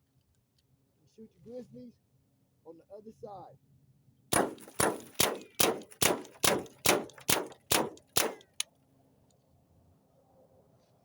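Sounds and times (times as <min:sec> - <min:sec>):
air rifle shots cracking: 0:04.3 - 0:08.6.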